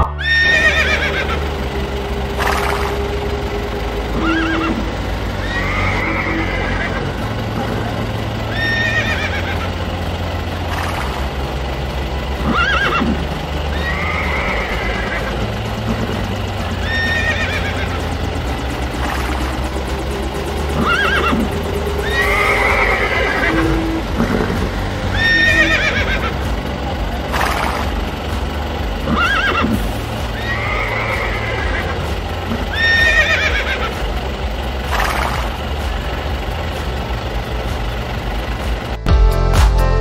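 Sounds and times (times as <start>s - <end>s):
horse whinnies: 0.0s - 1.4s, 4.2s - 4.8s, 5.4s - 7.1s, 8.5s - 9.7s, 16.8s - 17.8s, 20.8s - 24.0s, 25.2s - 26.3s, 29.1s - 29.8s, 30.4s - 31.9s, 32.7s - 33.9s
steady low hum: 0.0s - 40.0s.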